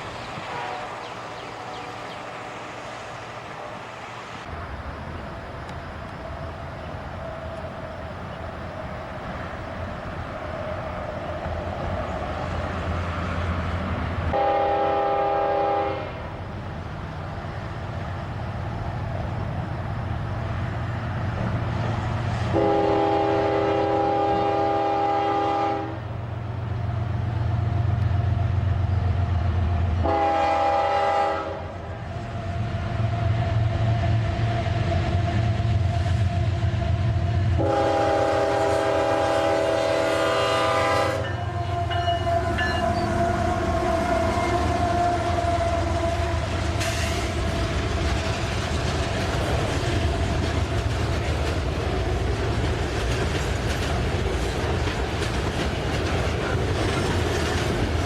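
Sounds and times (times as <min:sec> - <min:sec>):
passing train rumble: 0:00.0 - 0:58.0
locomotive air horn: 0:00.4 - 0:02.6, 0:14.3 - 0:16.4, 0:22.5 - 0:26.1, 0:30.0 - 0:32.0, 0:37.2 - 0:47.7.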